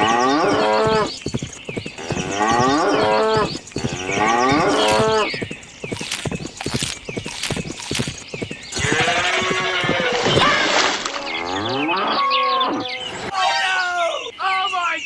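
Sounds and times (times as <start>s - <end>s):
cattle mooing: 2.0s - 5.3s, 8.7s - 13.2s
quick clicks: 3.4s - 11.3s.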